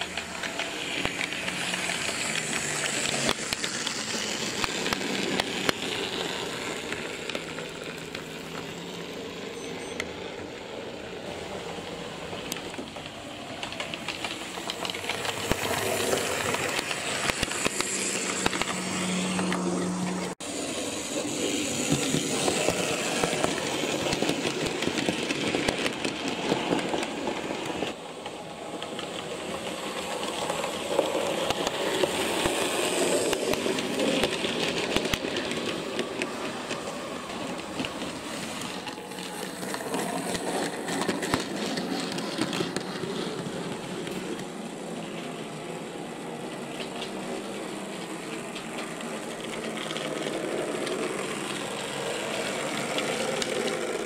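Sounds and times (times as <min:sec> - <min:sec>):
model train wheels clicking on rails: 0:00.0 - 0:54.0
small electric motors whirring: 0:00.1 - 0:09.0, 0:14.0 - 0:27.3.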